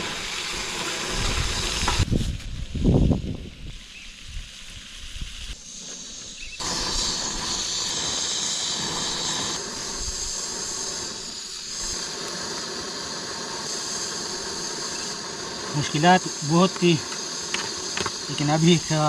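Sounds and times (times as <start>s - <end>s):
camp stove hissing: 0.0s - 19.0s
wind buffeting microphone: 1.0s - 4.5s.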